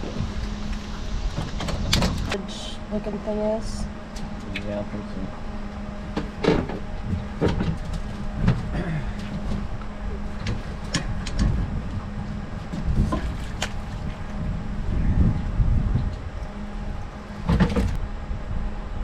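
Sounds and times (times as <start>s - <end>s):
knocks and clicks of gear: 0.0s - 2.4s, 10.3s - 12.0s
boat motor hum: 0.0s - 19.0s.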